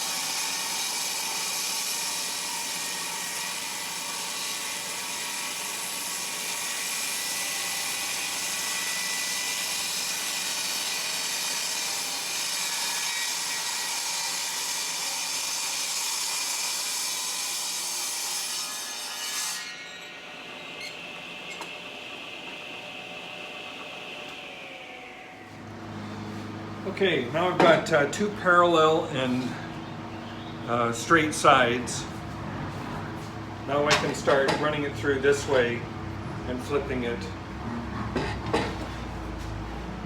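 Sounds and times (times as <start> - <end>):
table saw cutting wood: 0.0 - 29.7, 30.7 - 40.0
saw blade whining: 19.6 - 22.9.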